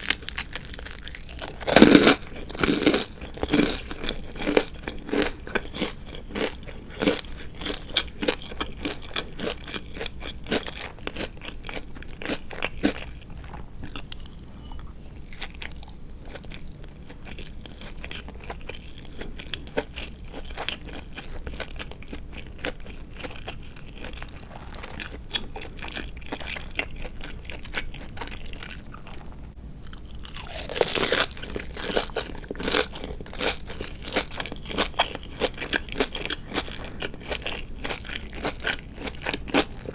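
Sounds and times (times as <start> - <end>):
loud crunchy bite: 0.0 - 11.3, 29.8 - 39.9
crunchy chewing of fried chicken: 0.0 - 39.9.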